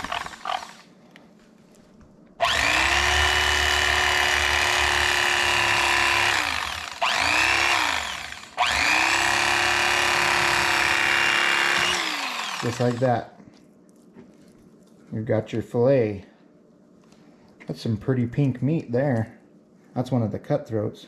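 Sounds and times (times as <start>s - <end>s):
electric fillet knife motor whine: 0.0s - 0.8s, 2.4s - 13.0s.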